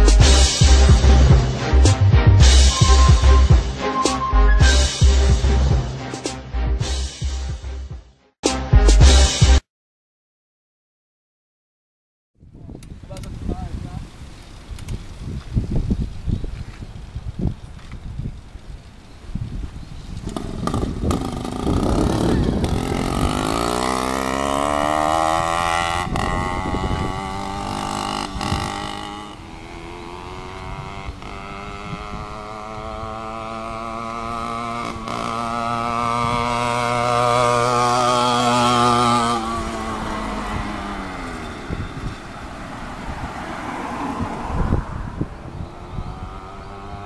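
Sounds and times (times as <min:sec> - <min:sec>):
two-stroke engine accelerating: 0:20.2 - 0:47.0.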